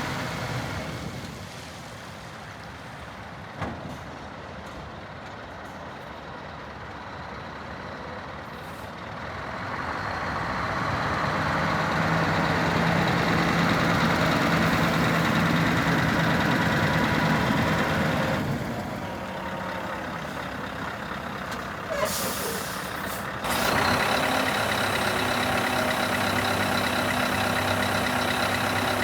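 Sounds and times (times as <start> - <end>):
diesel truck engine running: 6.4 - 29.0.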